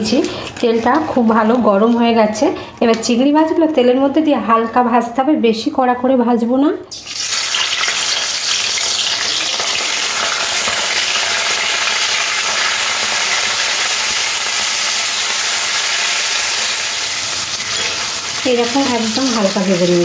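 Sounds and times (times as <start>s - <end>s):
prawns sizzling in hot oil: 6.9s - 20.0s.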